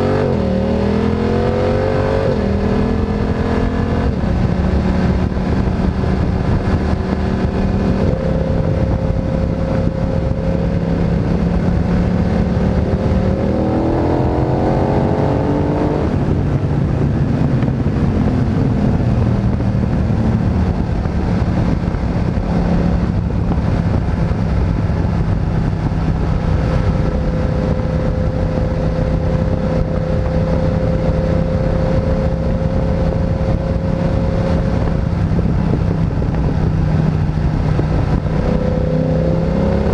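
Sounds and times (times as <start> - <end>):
motorcycle engine running: 0.0 - 39.9
steady rush of noise: 0.0 - 39.9.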